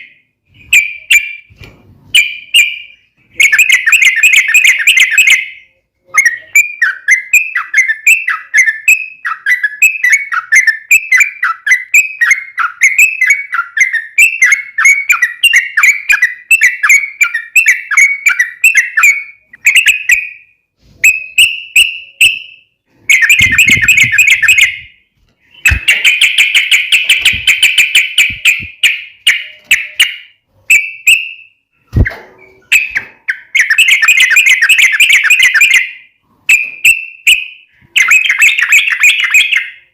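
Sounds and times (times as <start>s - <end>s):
bird chattering: 23.1s - 24.9s, 25.5s - 31.1s
bird singing bubbly notes: 23.1s - 25.0s.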